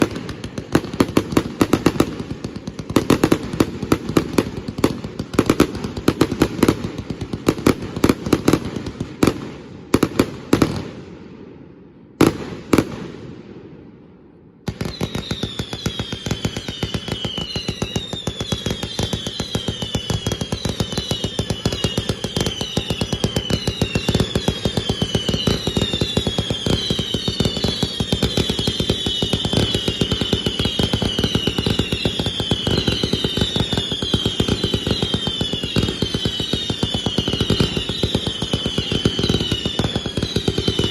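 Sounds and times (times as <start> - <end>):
fireworks crackling: 0.0 - 11.1, 14.7 - 40.9
fireworks bangs: 0.0 - 40.9
falling whistles: 14.7 - 40.9.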